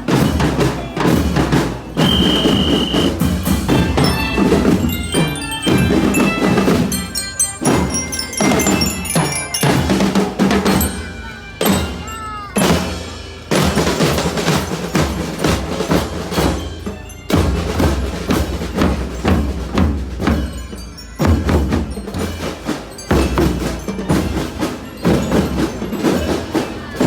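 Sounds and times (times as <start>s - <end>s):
percussion music with drums: 0.0s - 27.0s
bell-like mallet tones: 0.1s - 27.0s
steady high tone: 2.0s - 12.5s.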